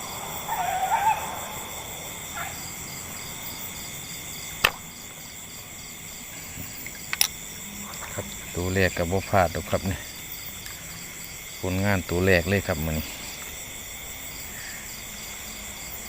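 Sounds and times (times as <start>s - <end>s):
insects droning: 0.0s - 16.0s
sharp gunshot snap: 4.6s - 4.9s.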